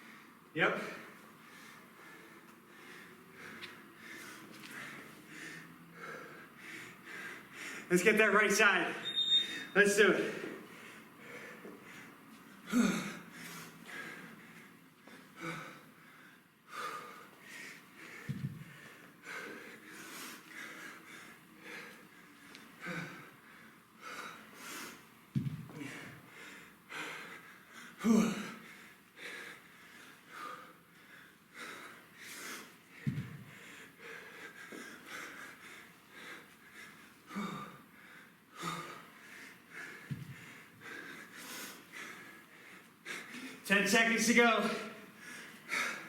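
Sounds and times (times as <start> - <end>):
man breathing hard: 0.0 - 7.9, 9.4 - 43.7, 44.4 - 46.0
man grunting: 28.0 - 28.6.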